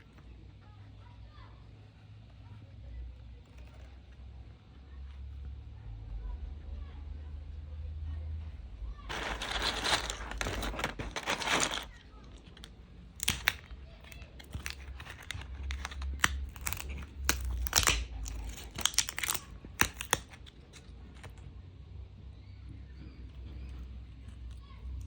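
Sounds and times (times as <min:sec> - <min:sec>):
packaging crinkling: 0:09.1 - 0:21.4
packaging tearing: 0:09.1 - 0:21.4.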